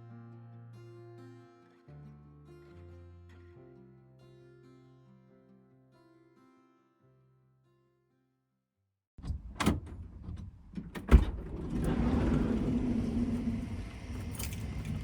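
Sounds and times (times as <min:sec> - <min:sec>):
heavy door thud: 0:09.2 - 0:14.7
steady rumble with low hum: 0:09.4 - 0:15.0.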